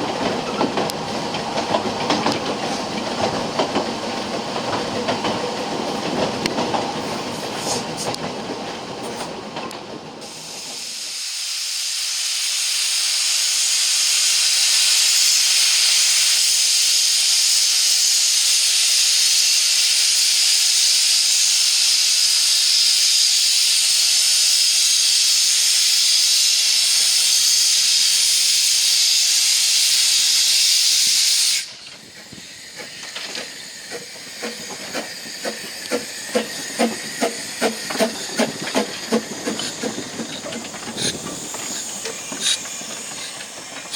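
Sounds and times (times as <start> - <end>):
train wheel clicks: 0.0 - 10.0, 31.8 - 43.9
train running: 0.0 - 43.9
hiss of escaping steam: 10.2 - 43.9.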